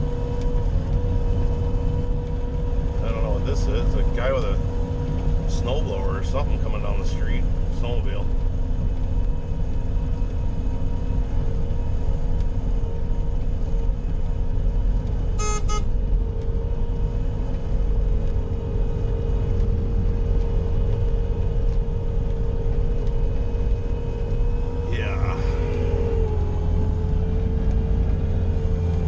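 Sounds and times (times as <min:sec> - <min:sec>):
diesel engine running: 0:00.0 - 0:29.0
short beeps: 0:15.4 - 0:15.9.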